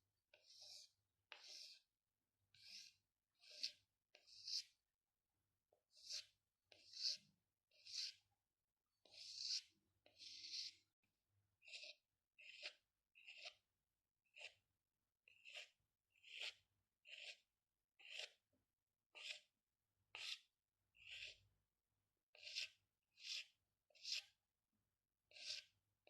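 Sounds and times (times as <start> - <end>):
pencil strokes scratching on paper: 0.3 - 1.9, 2.5 - 4.8, 5.9 - 8.3, 9.0 - 10.9, 11.6 - 13.6, 14.3 - 14.6, 15.3 - 18.4, 19.1 - 21.5, 22.3 - 24.4, 25.3 - 25.8.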